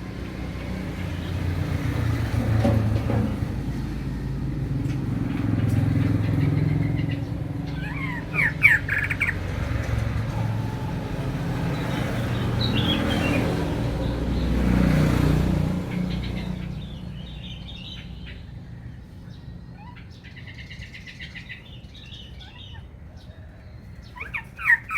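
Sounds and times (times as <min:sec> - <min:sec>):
vehicle low rumble: 0:00.0 - 0:24.9
bird singing chirps and whistles: 0:07.7 - 0:09.4.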